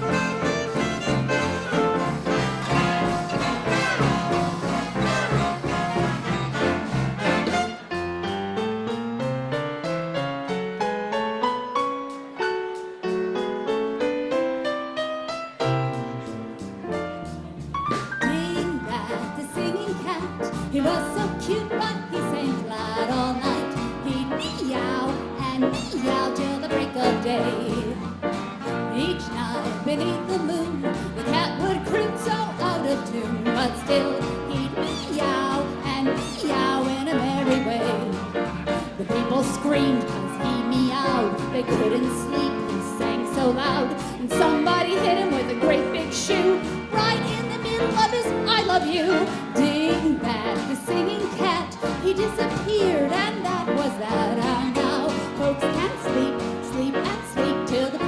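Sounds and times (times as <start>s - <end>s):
big band swing music: 0.0s - 58.0s
piano melody: 0.0s - 58.0s
woman singing: 18.2s - 28.1s, 28.9s - 38.4s, 39.0s - 58.0s.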